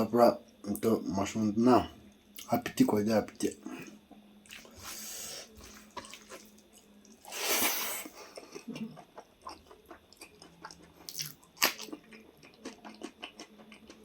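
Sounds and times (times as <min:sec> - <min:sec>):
person chewing and biting food: 0:04.5 - 0:14.0.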